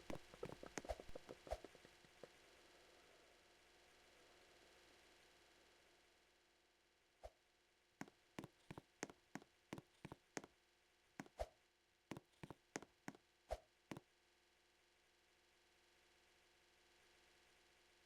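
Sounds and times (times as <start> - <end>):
light clicks and taps: 0.0 - 2.3.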